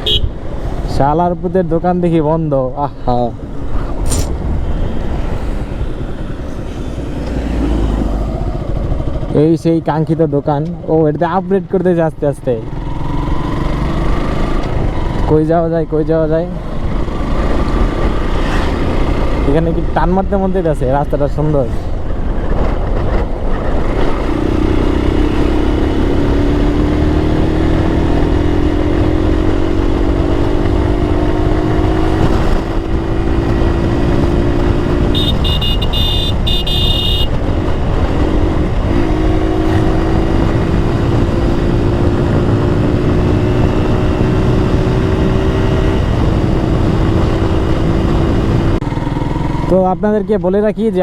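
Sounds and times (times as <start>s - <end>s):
motorcycle engine accelerating: 4.0s - 9.4s, 12.6s - 15.3s, 22.5s - 50.0s
wind rumble on microphone: 21.6s - 36.6s, 37.2s - 49.2s.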